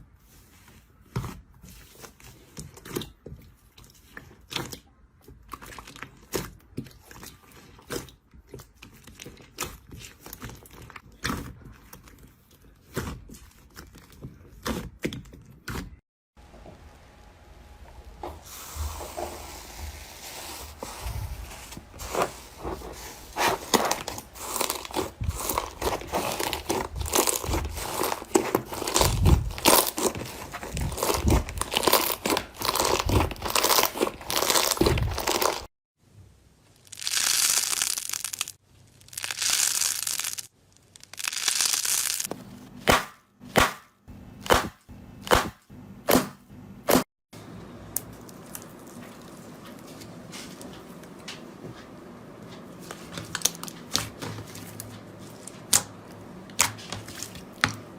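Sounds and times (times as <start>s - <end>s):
slime crackling and popping: 24.0s - 35.7s, 36.8s - 42.3s
slime hissing squishes: 36.8s - 42.3s.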